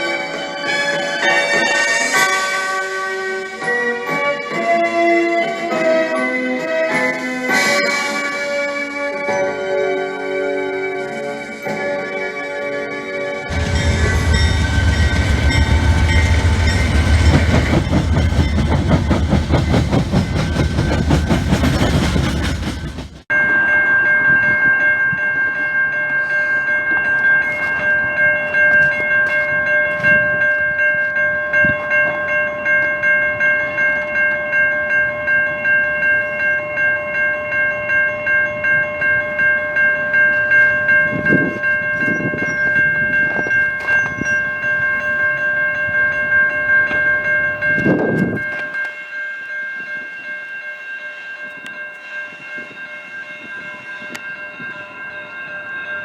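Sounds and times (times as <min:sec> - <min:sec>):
freight train rumbling: 0:13.4 - 0:23.3
pulsing high ringing tones: 0:13.5 - 0:22.9.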